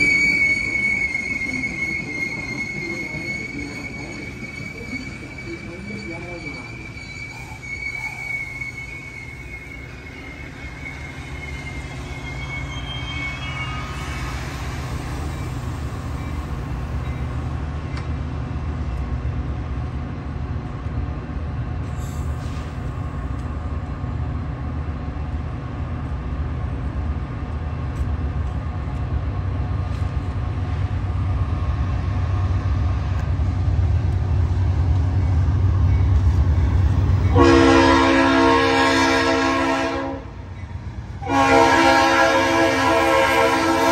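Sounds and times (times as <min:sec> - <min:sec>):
train wheel squeal: 0:00.0 - 0:18.1, 0:31.9 - 0:39.8, 0:40.4 - 0:42.3
diesel freight train rumble: 0:00.0 - 0:43.9.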